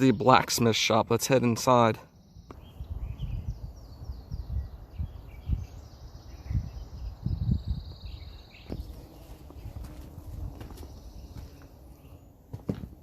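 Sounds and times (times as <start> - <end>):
birds chirping: 0.0 - 13.0
footstep thumps and rumble: 8.6 - 11.8, 12.5 - 13.0.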